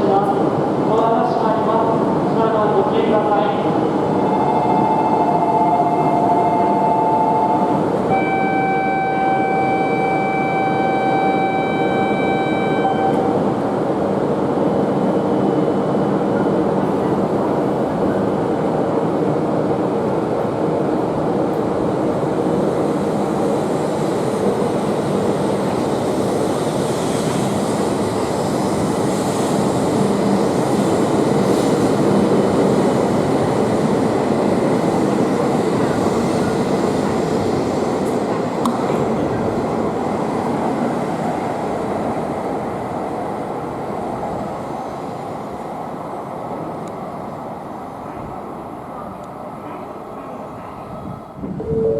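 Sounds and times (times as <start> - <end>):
train motors and wheels rushing: 0.0 - 51.9
held tone: 4.3 - 13.3, 51.6 - 51.9.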